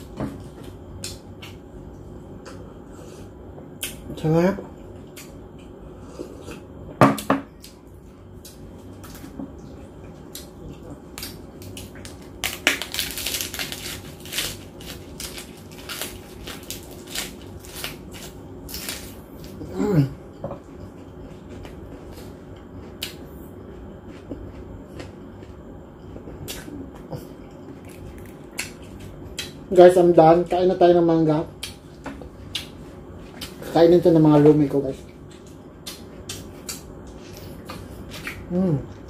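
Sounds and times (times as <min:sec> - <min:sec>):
chewing crisp lettuce: 0:08.4 - 0:19.7, 0:20.7 - 0:29.7
person humming mm: 0:19.6 - 0:20.2, 0:38.5 - 0:39.0.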